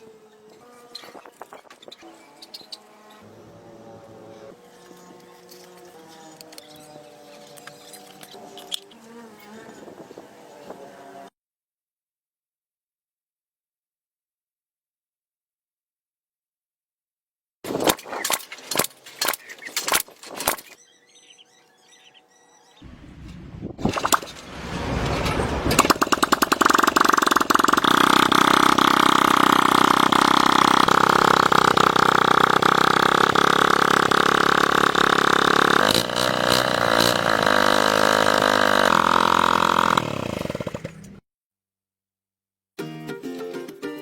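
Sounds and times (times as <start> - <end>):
small motorcycle engine running: 25.7 - 41.2.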